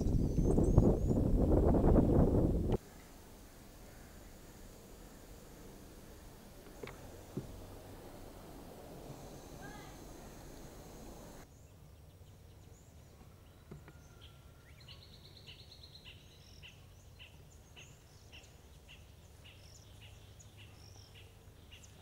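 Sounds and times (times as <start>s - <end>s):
background hiss: 0.0s - 13.6s.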